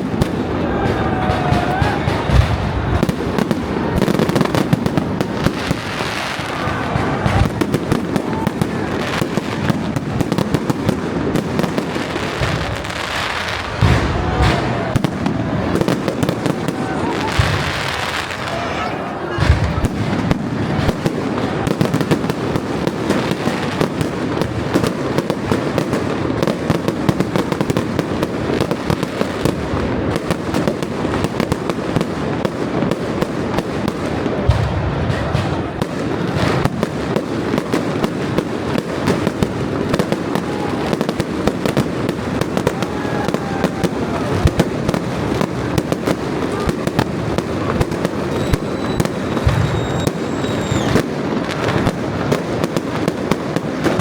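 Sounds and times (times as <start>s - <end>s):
fireworks bangs and crackling: 0.0s - 54.0s
faint high whistle: 48.3s - 51.0s.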